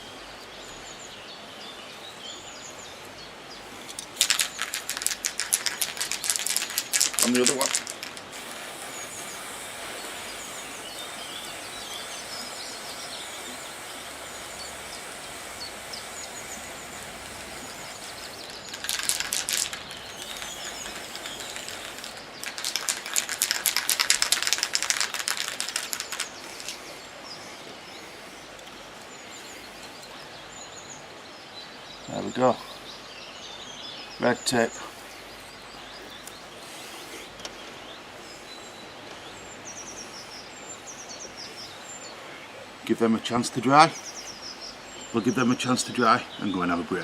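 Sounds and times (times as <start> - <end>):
faint birds chirping: 0.0 - 47.0
spray can ball rattling: 3.9 - 27.0.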